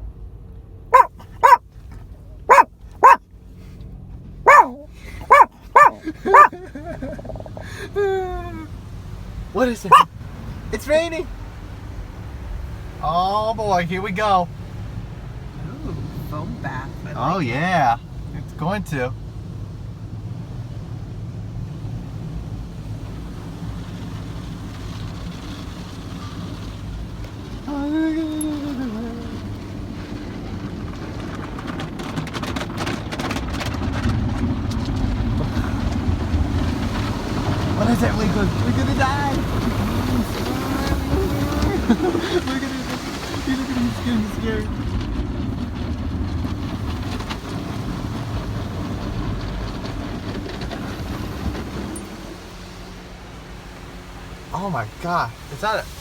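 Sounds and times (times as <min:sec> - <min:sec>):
car wash deep rumble: 0:00.0 - 0:56.0
water spraying on car body: 0:33.8 - 0:56.0.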